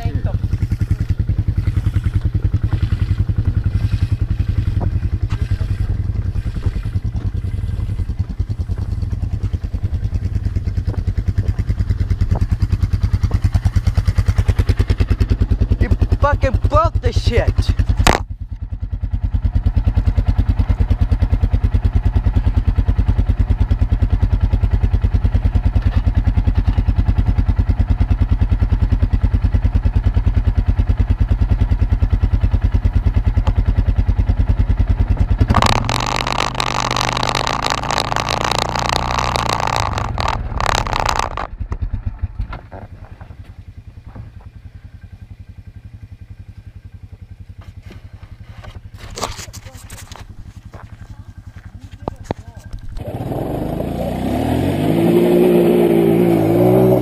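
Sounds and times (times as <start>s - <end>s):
atv engine running: 0.0s - 57.0s
rushing clattering noise: 35.5s - 41.5s.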